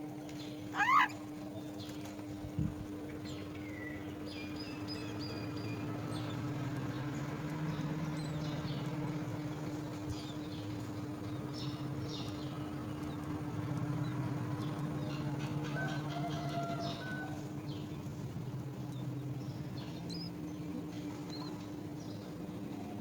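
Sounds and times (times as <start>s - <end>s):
birds chirping: 0.4s - 2.0s.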